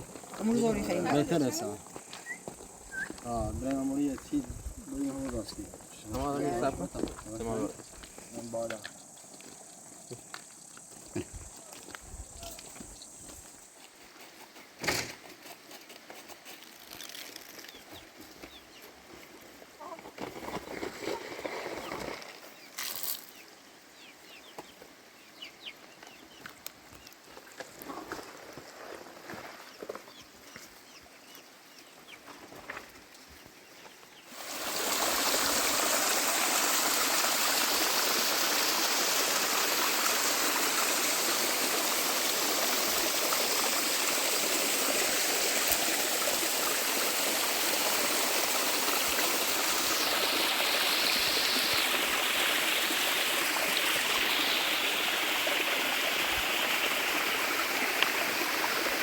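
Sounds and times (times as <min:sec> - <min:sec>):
water flowing: 0:34.3 - 0:59.0.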